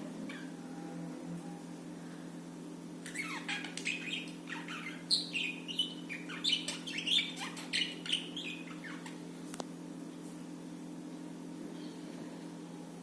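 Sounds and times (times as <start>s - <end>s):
steady low hum: 0.0s - 13.0s
budgies chirping and warbling: 3.0s - 9.2s.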